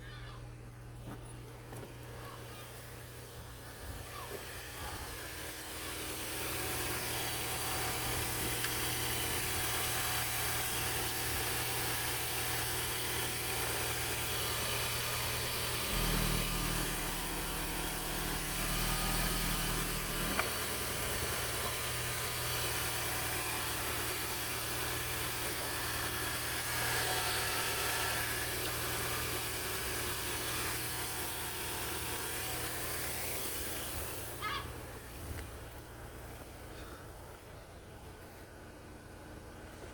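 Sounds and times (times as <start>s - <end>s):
petrol engine idling: 0.0s - 39.9s.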